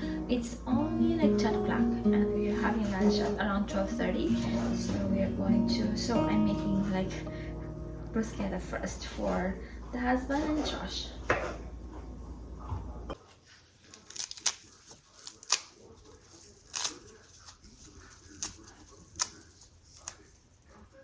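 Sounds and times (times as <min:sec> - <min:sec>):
knocks of food preparation: 0:10.6 - 0:13.2.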